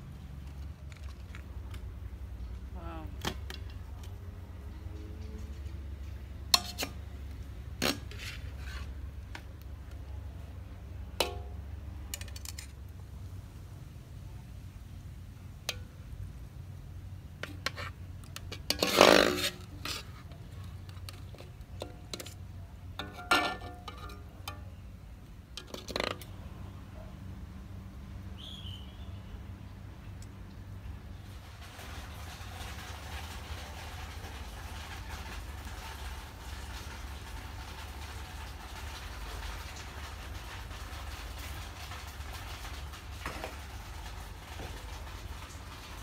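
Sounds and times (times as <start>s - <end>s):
metal utensils clinking on wok: 6.5s - 7.0s, 20.9s - 24.8s.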